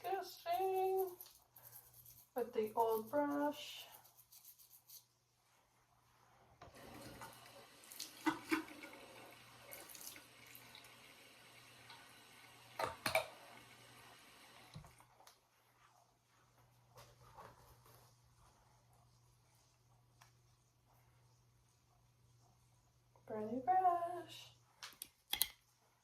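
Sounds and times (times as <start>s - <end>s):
tap water running into sink: 6.6s - 15.0s.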